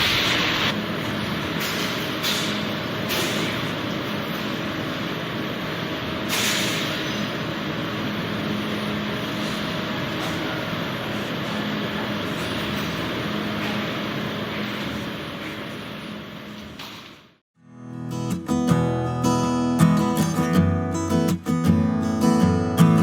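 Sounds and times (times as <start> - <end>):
machine hiss: 0.0 - 5.0, 6.2 - 14.9
machinery running with low hum: 0.0 - 23.0.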